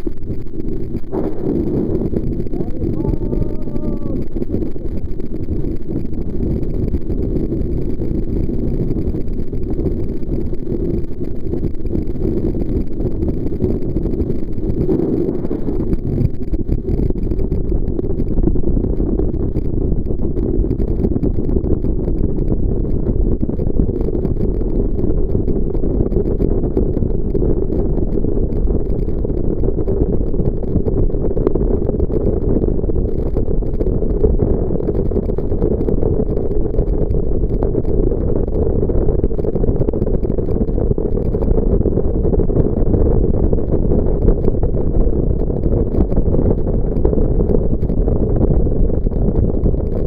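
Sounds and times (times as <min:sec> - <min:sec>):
jet boat rumbling: 0:00.1 - 0:06.6.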